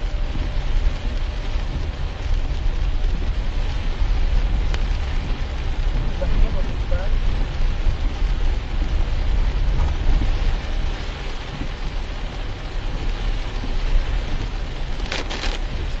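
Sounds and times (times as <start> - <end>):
rain and tyre water hiss: 0.0 - 16.0
road noise rumble: 0.0 - 16.0.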